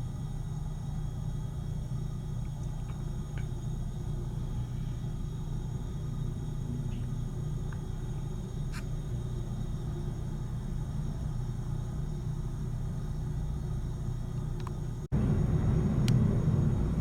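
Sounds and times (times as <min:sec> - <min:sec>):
jet engines rumbling: 0:15.0 - 0:17.0.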